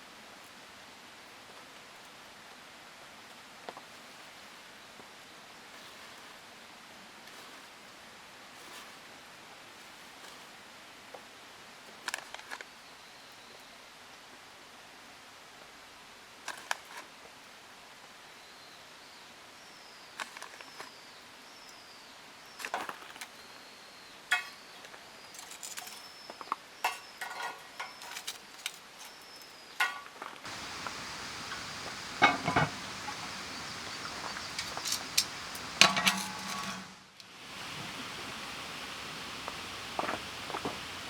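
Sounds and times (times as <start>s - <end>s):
background hiss: 12.9s - 41.0s
camp cookware clinking: 24.3s - 24.6s, 26.8s - 29.2s, 29.8s - 37.8s.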